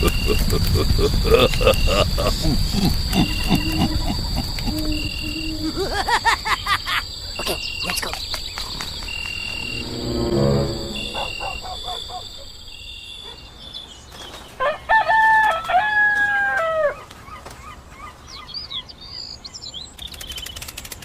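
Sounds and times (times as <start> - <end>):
small birds chirping: 0.0 - 9.6, 17.0 - 21.0
high insect drone: 0.0 - 13.0
rooster crowing: 14.7 - 17.0.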